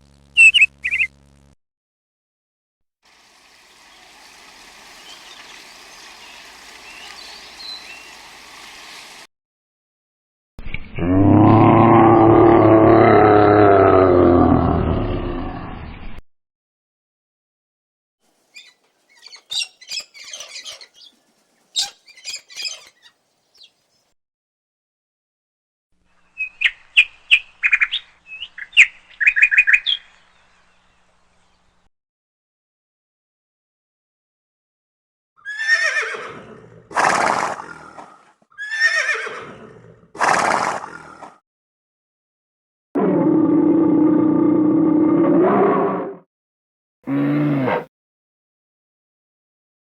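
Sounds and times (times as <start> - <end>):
animal chirps and squeaks: 0.4 - 1.1, 18.5 - 23.8
horse whinnying: 35.4 - 37.9, 38.5 - 40.9, 47.1 - 47.9.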